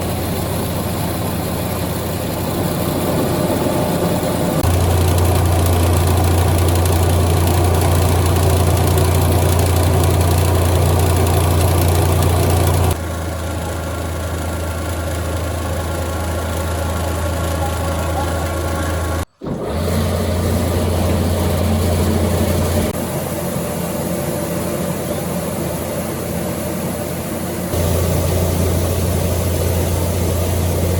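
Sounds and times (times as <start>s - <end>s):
machine motor humming and rattling: 0.0s - 30.9s.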